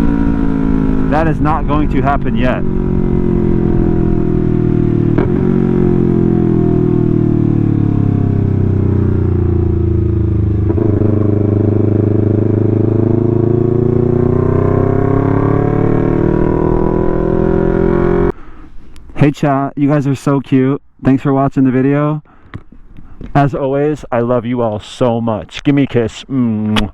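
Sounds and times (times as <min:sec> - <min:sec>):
motorcycle engine revving: 0:00.0 - 0:18.4.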